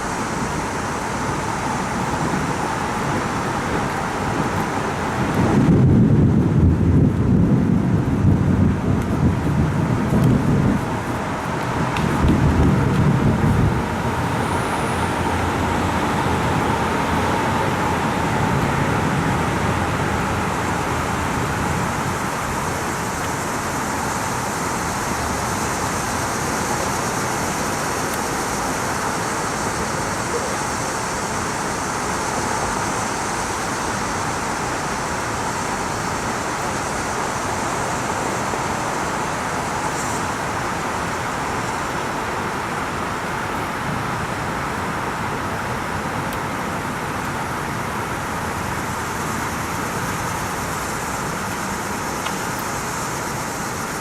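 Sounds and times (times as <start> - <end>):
heavy rain hiss: 0.0 - 54.0
low thunder rumble: 0.4 - 22.9.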